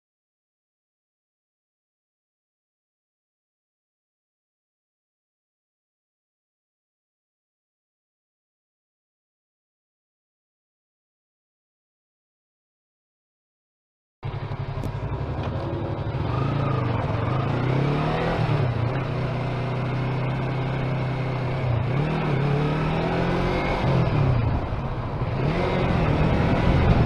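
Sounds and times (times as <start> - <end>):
car engine running: 14.2 - 27.0
road noise: 14.2 - 27.0.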